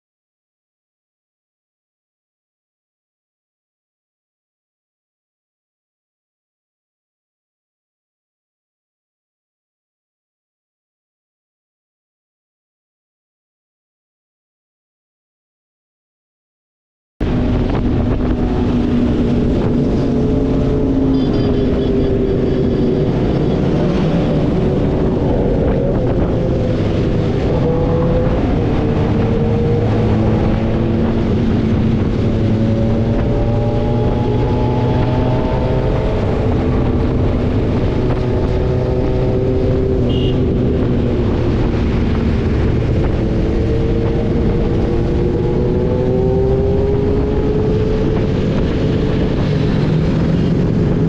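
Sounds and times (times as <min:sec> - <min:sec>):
wind buffeting microphone: 0:17.2 - 0:51.0.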